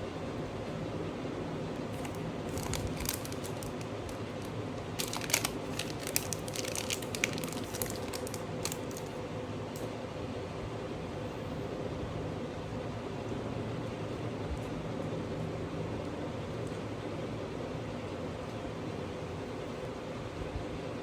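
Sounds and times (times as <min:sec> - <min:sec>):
steady background hiss: 0:00.0 - 0:21.0
crinkling: 0:01.8 - 0:09.9.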